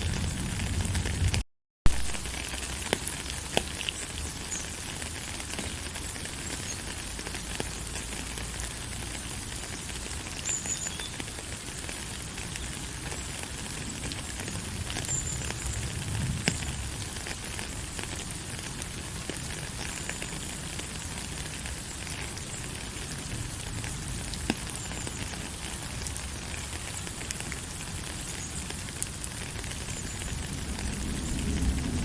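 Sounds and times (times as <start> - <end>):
raindrops ticking: 0.0 - 32.0
steady rain hissing: 0.0 - 32.0.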